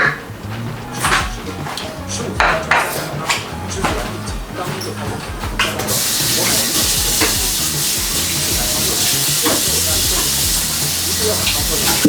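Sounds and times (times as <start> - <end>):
food sizzling in a pan: 5.8 - 12.0.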